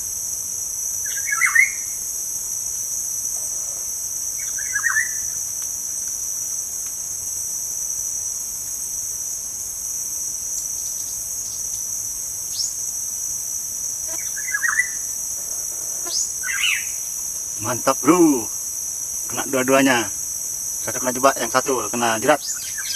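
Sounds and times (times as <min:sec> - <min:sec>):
insects chirring: 0:00.0 - 0:22.9
bird calls: 0:14.1 - 0:15.0, 0:15.7 - 0:17.0.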